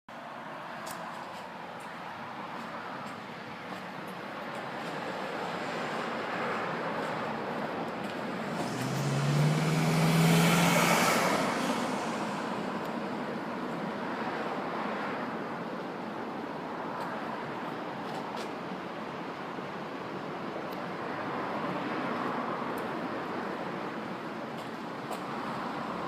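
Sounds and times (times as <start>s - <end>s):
traffic noise: 0.1s - 26.0s
vehicle passing: 4.8s - 13.6s.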